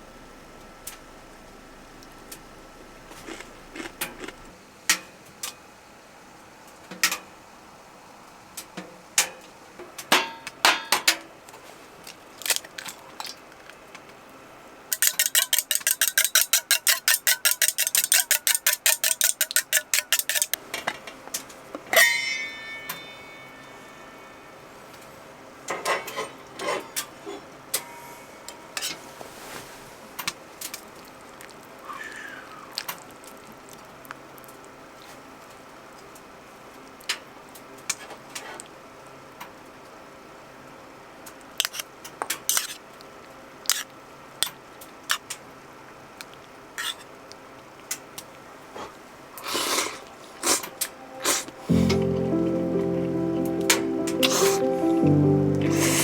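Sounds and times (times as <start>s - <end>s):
small metal items clinking: 14.9s - 20.6s
ringing metal clink: 22.0s - 24.2s.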